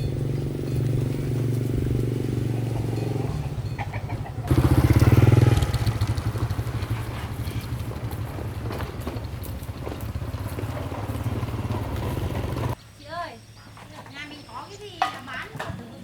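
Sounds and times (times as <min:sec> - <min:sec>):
small petrol engine revving: 0:00.0 - 0:12.8.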